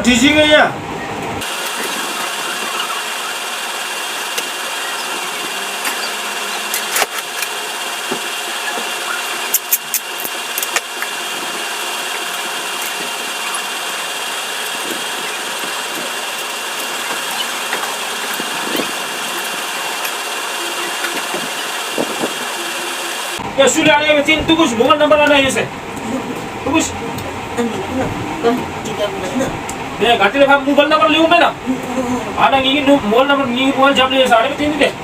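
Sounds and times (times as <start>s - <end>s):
engine idling: 1.1s - 35.0s
sharp clicks: 9.5s - 11.1s.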